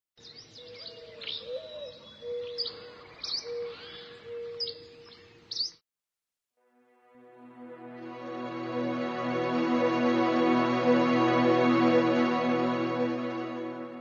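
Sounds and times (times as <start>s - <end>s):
birds chirping: 0.2s - 5.8s.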